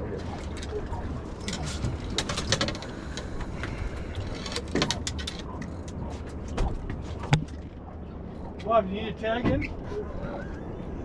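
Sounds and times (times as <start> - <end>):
clicks and knocks of fishing gear: 1.4 - 7.8.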